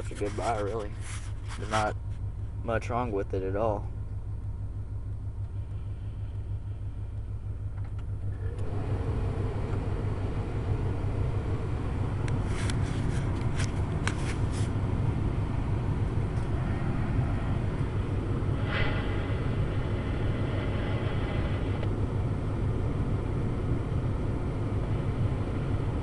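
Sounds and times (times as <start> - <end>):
engine idling low rumble: 0.0 - 26.0.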